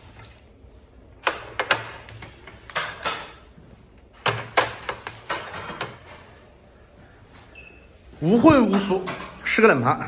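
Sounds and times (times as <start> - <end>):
plates clacking on tables: 1.3 - 3.6, 4.2 - 6.4.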